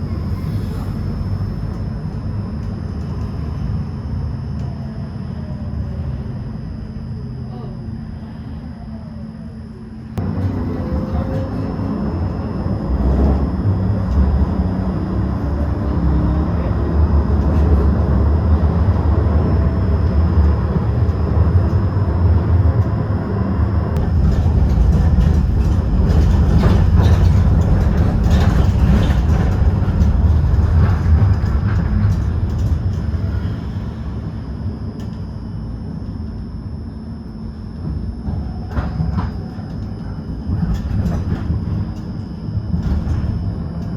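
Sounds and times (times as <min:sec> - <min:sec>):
tram rumbling on rails: 0:00.0 - 0:43.9
wheels clicking on track: 0:24.0 - 0:33.4.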